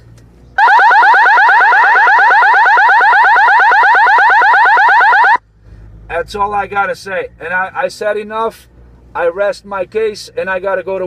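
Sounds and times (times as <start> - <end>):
electronic alarm warble: 0.6 - 5.4.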